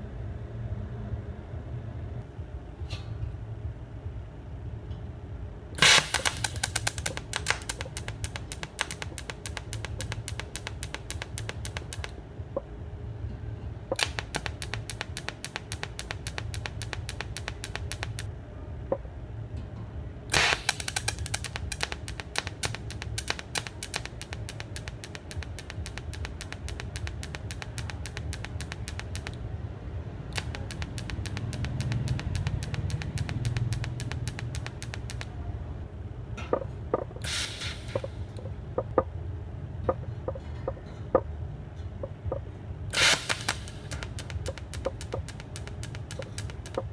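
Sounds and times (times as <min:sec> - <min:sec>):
low electrical hum: 0:00.0 - 0:46.9
welding arc clicking pulse: 0:05.8 - 0:12.2, 0:13.9 - 0:18.3, 0:20.3 - 0:29.4, 0:30.3 - 0:35.4, 0:37.2 - 0:39.0, 0:42.9 - 0:46.9
welding arc crack: 0:05.8 - 0:12.2, 0:13.9 - 0:18.3, 0:20.3 - 0:29.4, 0:30.3 - 0:35.4, 0:37.2 - 0:38.4, 0:42.9 - 0:46.9.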